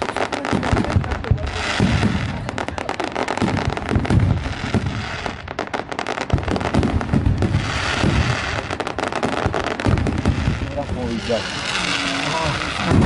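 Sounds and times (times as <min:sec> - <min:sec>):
fireworks bangs and crackles: 0:00.0 - 0:13.0
fireworks low booms: 0:00.0 - 0:13.0
hissing crackling burst: 0:00.0 - 0:13.0.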